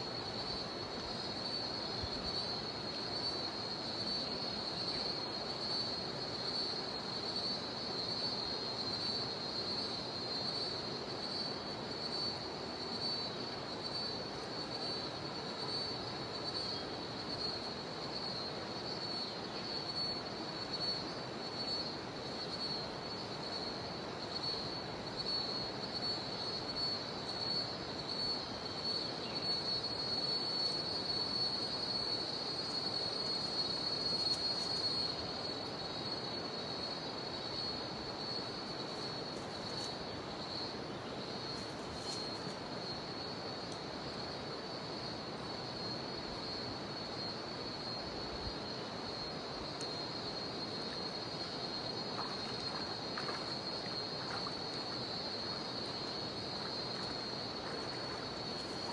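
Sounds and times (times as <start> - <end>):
cicadas singing: 0.0 - 58.9.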